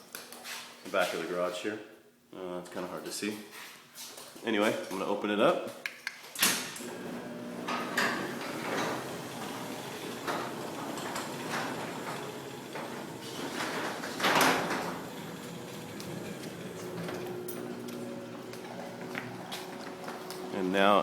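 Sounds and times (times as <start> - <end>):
loud clunk of garage door: 6.4 - 20.5
door panels and rollers rattling: 6.4 - 20.8
garage door opener motor running: 6.8 - 21.0.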